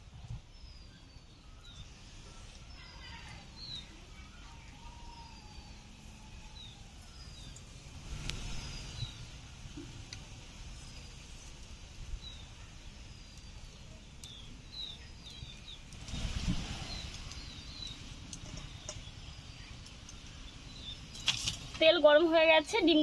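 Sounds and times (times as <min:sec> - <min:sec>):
small birds chirping: 0:00.0 - 0:23.0
faint clicks: 0:14.2 - 0:16.2.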